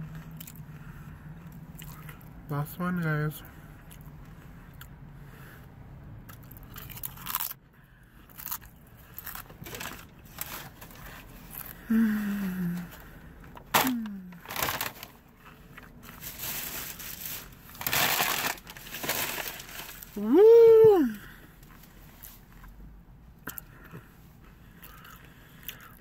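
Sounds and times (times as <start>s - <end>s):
chip crunching: 6.3s - 7.6s, 8.3s - 11.9s, 13.8s - 20.2s
rustling: 13.8s - 20.2s.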